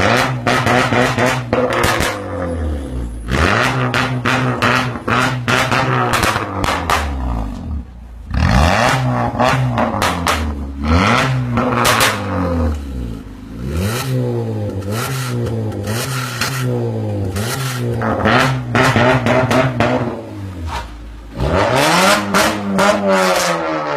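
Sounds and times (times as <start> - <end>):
car engine revving: 0.0 - 23.9
exhaust crackles and pops: 3.6 - 7.7.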